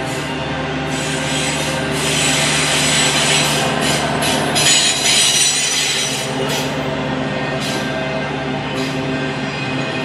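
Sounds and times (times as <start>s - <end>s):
train wheels rumbling on rails: 0.0s - 10.0s
high ringing wheel squeal: 0.9s - 6.9s.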